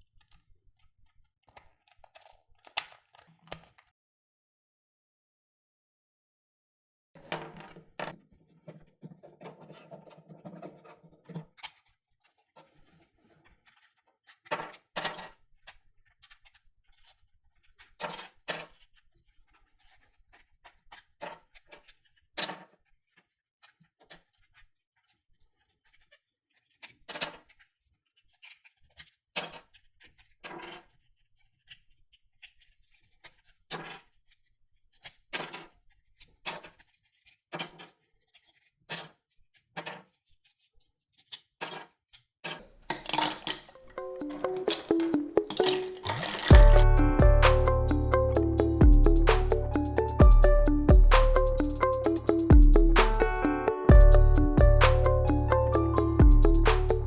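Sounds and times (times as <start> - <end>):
puzzle cube clicking and knocking: 42.9 - 46.8.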